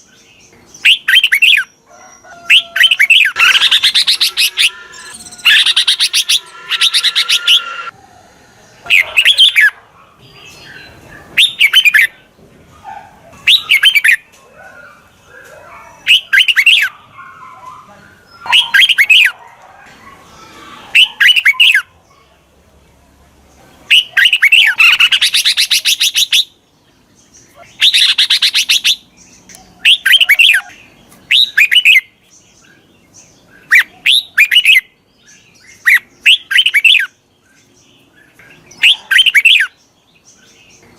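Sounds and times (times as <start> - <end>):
bulbul chirping calls: 2.5 - 7.9, 27.5 - 32.1.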